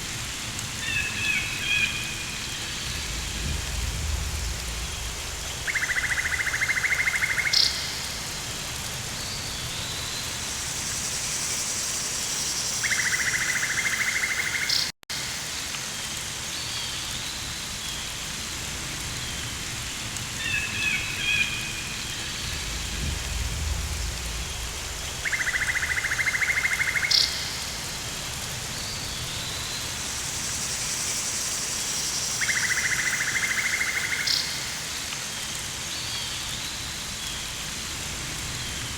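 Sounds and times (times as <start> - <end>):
steady rain hiss: 0.0 - 38.9
low rumble: 2.6 - 6.6, 22.2 - 26.0.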